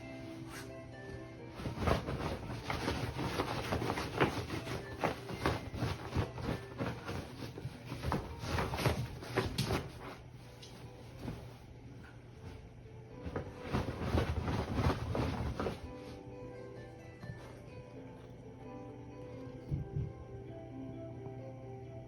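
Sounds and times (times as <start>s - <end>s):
dog paws scratching bed: 0.0s - 0.8s, 1.5s - 16.2s.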